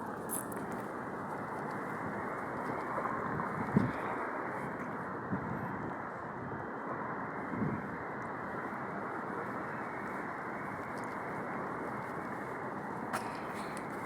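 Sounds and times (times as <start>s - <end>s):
traffic hum: 0.0s - 14.0s
wind on microphone: 2.1s - 6.6s, 7.5s - 8.0s.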